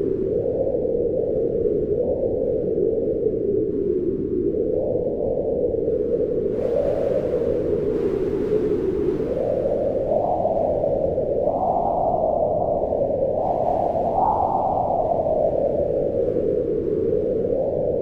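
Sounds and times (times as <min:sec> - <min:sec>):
wind blowing: 0:05.7 - 0:18.0.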